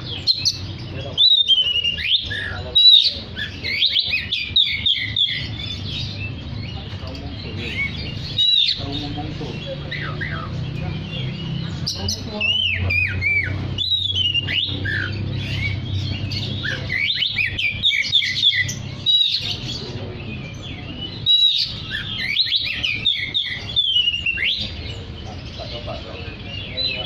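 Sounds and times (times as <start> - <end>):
bird singing varied whistles: 1.2 - 5.4, 12.4 - 15.8, 21.2 - 24.8.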